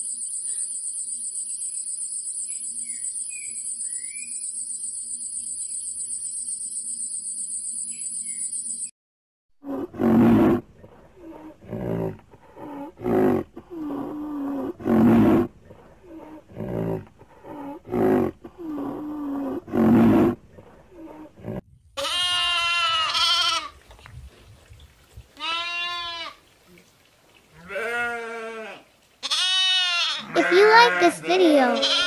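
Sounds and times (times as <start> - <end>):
low moaning: 9.6 - 21.6
rhinoceros huffing: 9.6 - 21.6
goat bleating: 22.0 - 23.8, 25.4 - 26.4, 27.6 - 32.0.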